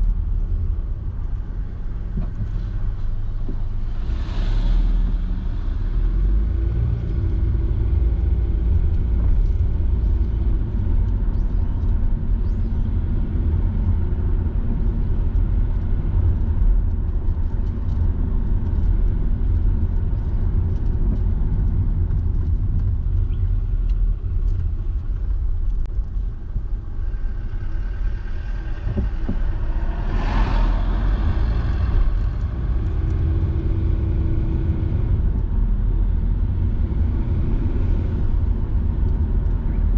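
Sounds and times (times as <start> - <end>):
car engine and road noise: 0.0 - 39.9
rushing noise: 26.2 - 35.2.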